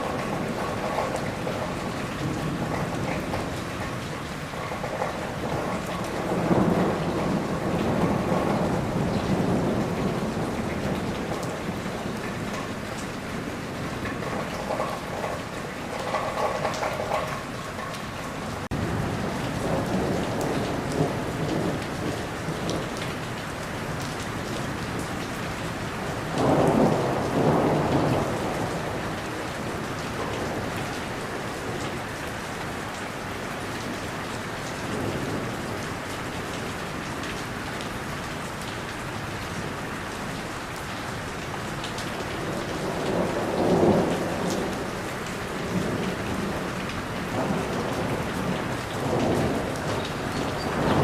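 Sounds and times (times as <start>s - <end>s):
rolling thunder: 0.0s - 17.5s, 18.6s - 23.2s, 23.9s - 32.0s, 42.3s - 51.0s
steady rain: 0.0s - 51.0s.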